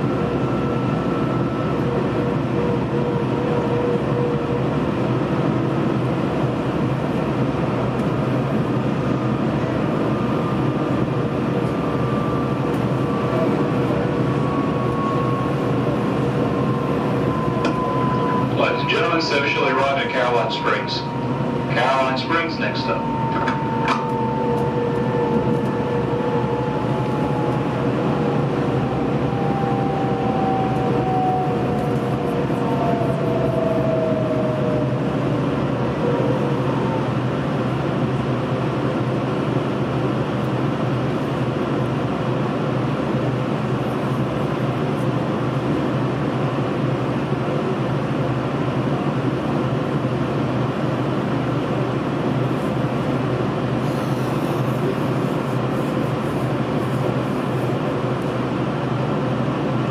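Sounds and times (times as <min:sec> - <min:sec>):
train rumbling inside carriage: 0:00.0 - 0:59.9
train whine falling in pitch: 0:10.4 - 0:39.1.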